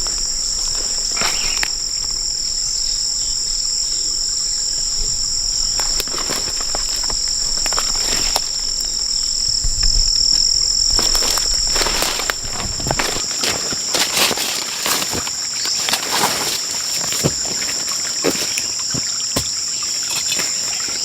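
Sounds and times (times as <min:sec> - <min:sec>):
shrill insect chorus: 0:00.0 - 0:21.0.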